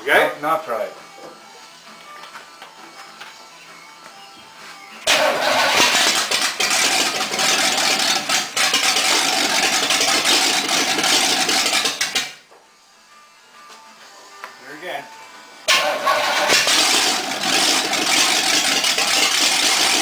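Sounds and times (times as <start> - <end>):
engine starting and running loudly: 5.0 - 12.4, 15.7 - 20.0.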